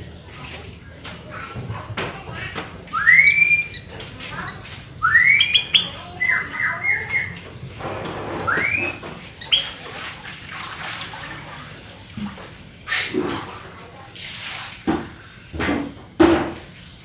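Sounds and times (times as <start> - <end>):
bulbul singing whistled notes: 2.9 - 3.9, 5.0 - 7.4, 8.5 - 9.8.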